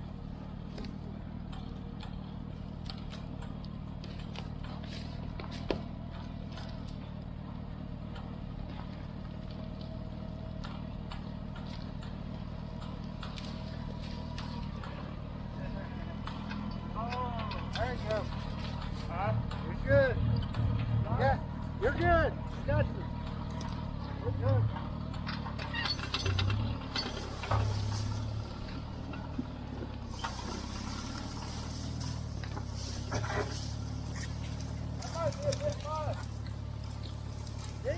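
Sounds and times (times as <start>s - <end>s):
tractor engine running: 0.0s - 37.9s
metallic clicks and rattles: 24.8s - 29.2s.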